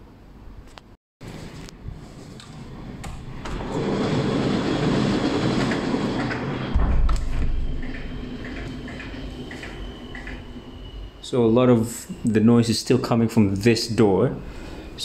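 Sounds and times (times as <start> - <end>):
train rushing rail noise: 1.2 - 13.6
heavy low rumble: 1.7 - 12.4.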